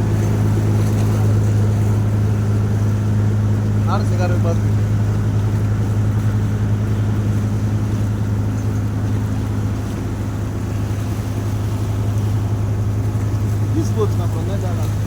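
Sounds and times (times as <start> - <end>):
boat engine humming: 0.0 - 15.0
water noise: 0.0 - 15.0.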